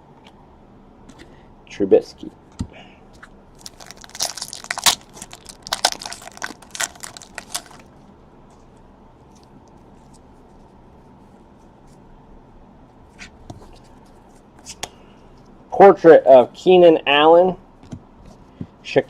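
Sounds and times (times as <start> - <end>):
wrapper tearing and crinkling: 3.6 - 7.9.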